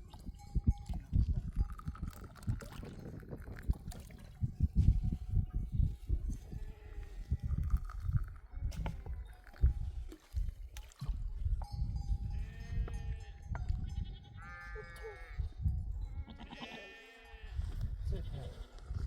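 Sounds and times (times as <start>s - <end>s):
sheep bleating: 14.0s - 15.5s, 16.1s - 17.6s.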